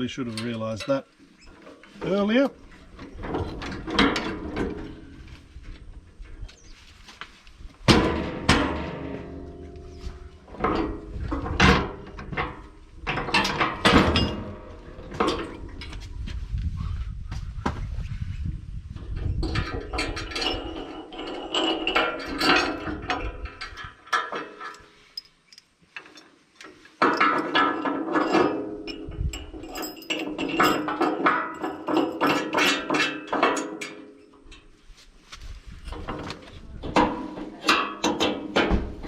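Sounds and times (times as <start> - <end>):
steel parts clanking and ringing: 0.2 - 2.5, 8.0 - 15.9, 19.5 - 26.3, 27.0 - 34.7.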